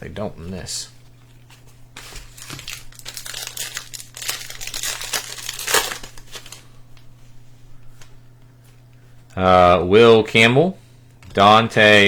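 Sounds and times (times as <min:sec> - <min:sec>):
wrapper tearing and crinkling: 0:02.0 - 0:06.7.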